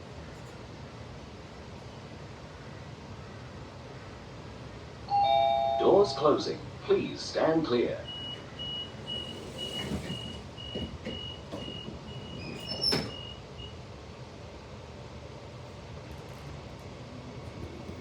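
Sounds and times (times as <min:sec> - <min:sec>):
train noise: 0:02.0 - 0:18.0
door warning beeps: 0:08.0 - 0:13.8
train doors shutting with thud: 0:08.0 - 0:13.8, 0:16.0 - 0:18.0.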